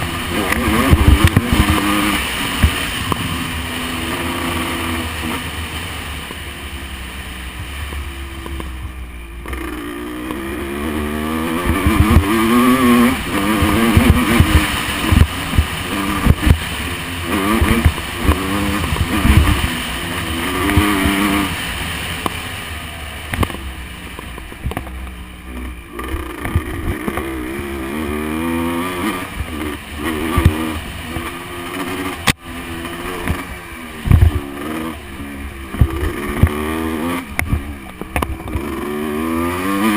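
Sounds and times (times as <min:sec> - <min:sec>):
motocross bike engine revving: 0:00.0 - 0:39.9
low thumps: 0:23.3 - 0:27.9.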